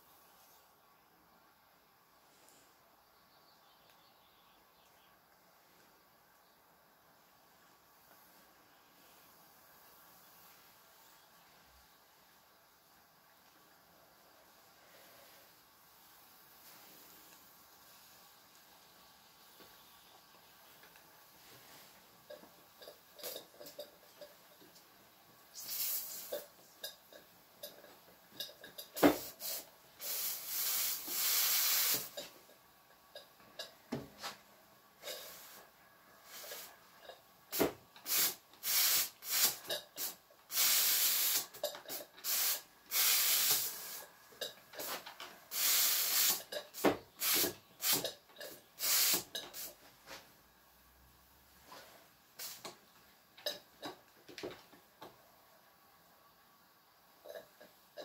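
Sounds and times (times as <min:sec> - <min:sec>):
steam boiler hissing and spitting: 0:25.5 - 0:26.6, 0:28.8 - 0:32.4, 0:35.0 - 0:36.9, 0:37.5 - 0:44.1, 0:44.8 - 0:48.2, 0:48.8 - 0:49.8, 0:52.4 - 0:52.8.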